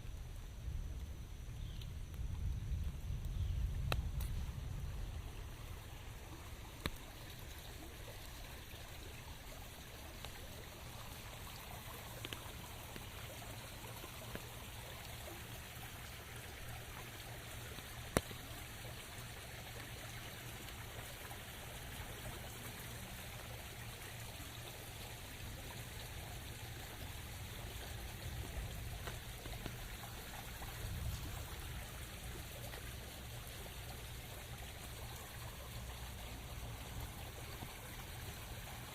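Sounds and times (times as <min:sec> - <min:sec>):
steady rain: 0:00.0 - 0:38.9
trickling running water: 0:00.0 - 0:38.9
water drip clicks: 0:01.6 - 0:04.6, 0:06.6 - 0:08.4, 0:10.0 - 0:15.2, 0:16.6 - 0:21.2, 0:25.4 - 0:33.8.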